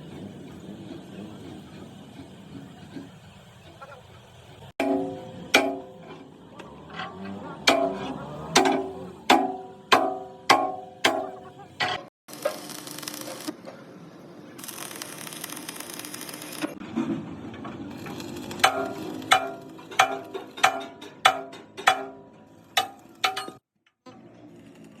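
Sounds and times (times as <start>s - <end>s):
hammer blows on steel: 4.8s - 6.4s, 7.6s - 12.1s
welding crackling hiss: 14.6s - 16.7s.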